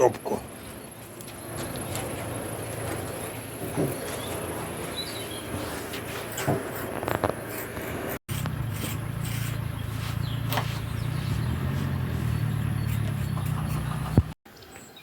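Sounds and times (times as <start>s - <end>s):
engine humming: 8.0s - 14.4s.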